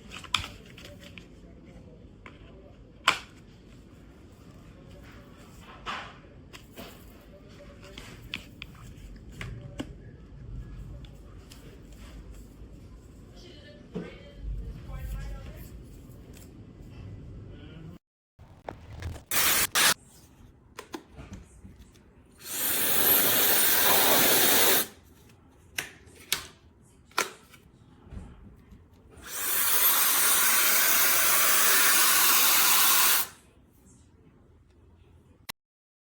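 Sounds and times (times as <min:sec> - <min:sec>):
hair dryer blowing air: 0:19.3 - 0:20.0, 0:22.4 - 0:24.9, 0:29.2 - 0:33.4.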